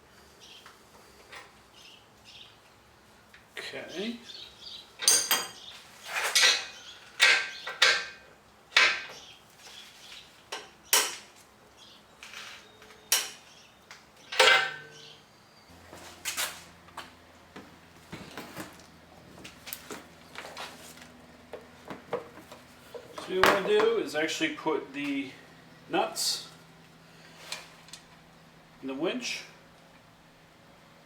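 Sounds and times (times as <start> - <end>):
metal tools clinking: 5.0 - 8.2, 14.3 - 15.0
steady low hum: 14.6 - 31.0.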